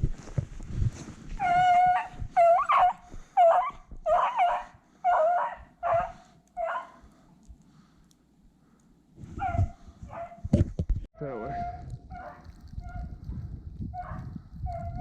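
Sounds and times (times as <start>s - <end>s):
dog baying: 1.4s - 7.0s.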